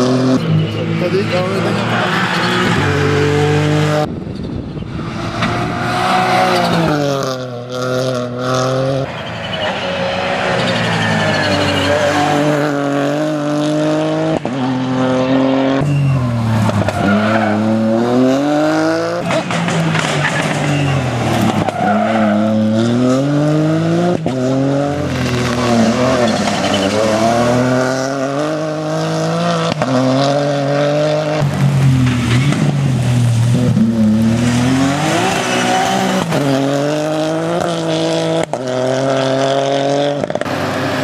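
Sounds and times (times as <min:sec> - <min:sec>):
rally car engine revving: 0:00.0 - 0:41.0
tyres squealing: 0:09.0 - 0:12.8.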